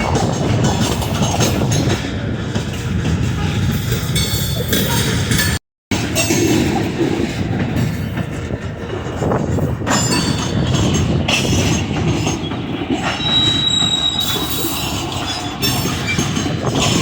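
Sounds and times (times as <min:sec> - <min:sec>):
train wheels rumbling and clacking: 0:00.0 - 0:17.0
high wheel squeal: 0:10.0 - 0:17.0.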